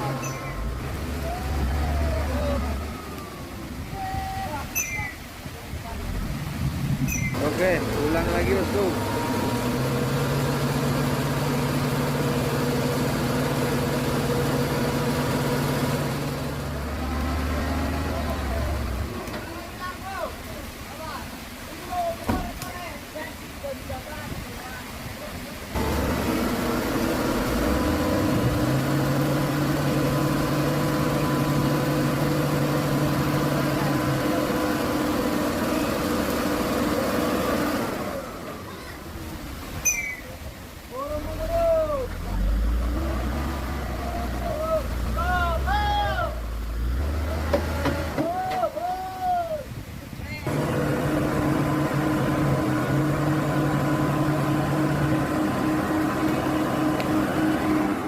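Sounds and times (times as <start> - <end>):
diesel truck engine running: 0.0 - 3.9, 5.8 - 19.7, 25.7 - 39.6, 41.2 - 48.2, 50.5 - 58.0.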